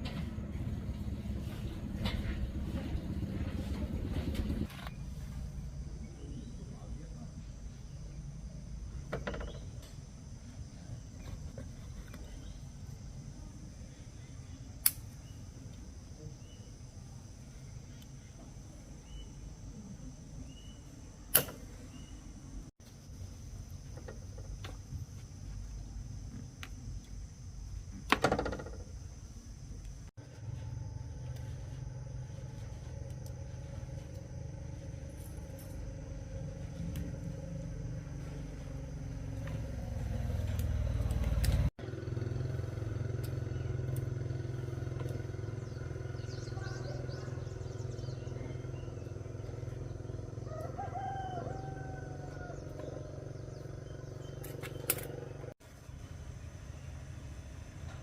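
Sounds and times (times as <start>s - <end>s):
motorcycle engine running: 30.2s - 58.0s
rooster crowing: 50.2s - 53.2s.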